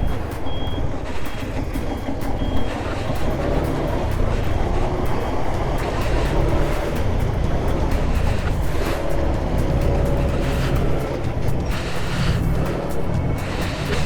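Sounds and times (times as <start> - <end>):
road and wind noise: 0.0 - 14.0
vehicle engine rumble: 0.0 - 14.0.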